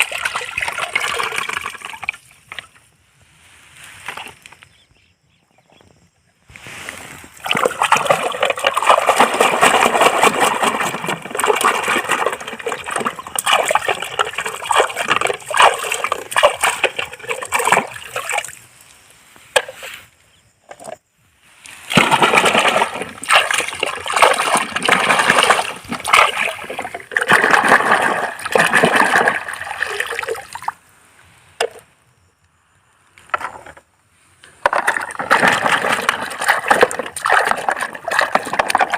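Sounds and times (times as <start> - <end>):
water splashing and sloshing: 0.0 - 4.7, 6.5 - 20.1, 20.7 - 30.9, 34.4 - 38.9.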